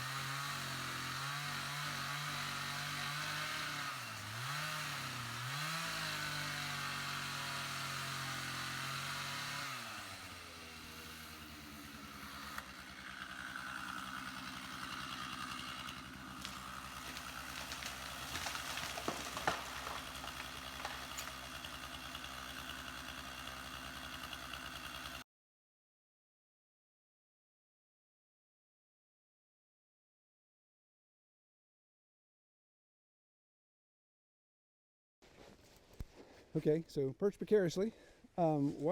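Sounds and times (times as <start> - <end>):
chainsaw running: 0.0 - 25.2
sharp cracks and snaps: 16.4 - 21.4.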